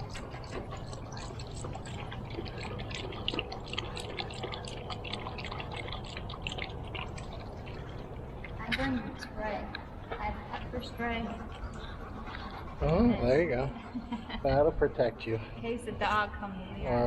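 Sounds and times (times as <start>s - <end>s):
dog lapping and splashing water: 0.0s - 13.7s.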